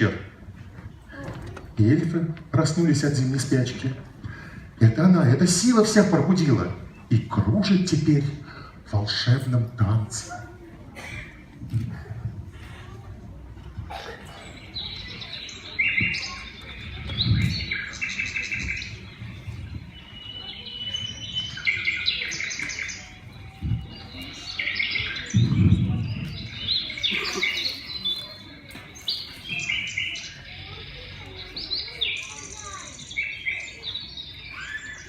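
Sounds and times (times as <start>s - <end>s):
small birds chirping and trilling: 13.7s - 35.0s.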